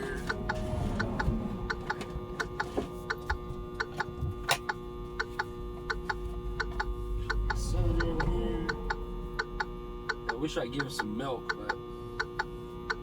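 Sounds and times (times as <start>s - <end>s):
microwave oven humming: 0.0s - 13.0s
rapid even ticking: 4.6s - 13.0s.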